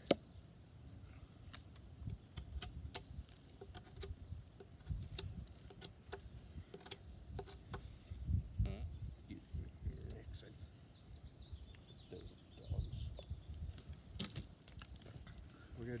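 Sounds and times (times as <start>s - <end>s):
knife shaving wood: 1.5s - 7.9s.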